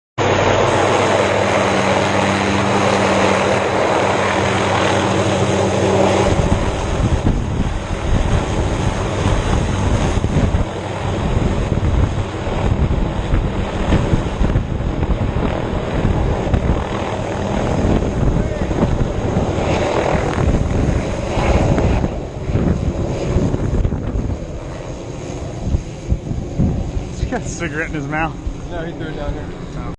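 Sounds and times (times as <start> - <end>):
helicopter rotor and engine drone: 0.2 - 29.9.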